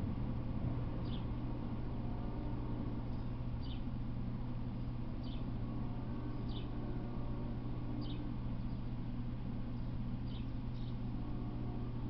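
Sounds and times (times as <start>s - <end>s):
steady low hum: 0.0s - 12.0s
bird chirping: 1.0s - 1.3s, 3.6s - 3.8s, 5.2s - 5.5s, 6.4s - 6.8s, 8.0s - 8.8s, 9.8s - 11.0s.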